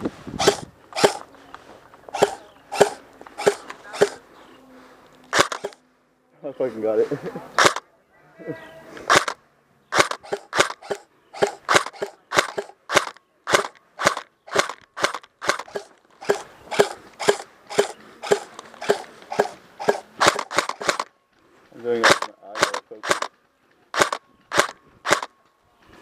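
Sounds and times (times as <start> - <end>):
airsoft gun firing: 0.4 - 1.3, 2.1 - 4.2, 5.3 - 5.8, 7.6 - 7.8, 9.1 - 21.1, 22.0 - 23.3, 23.9 - 25.3.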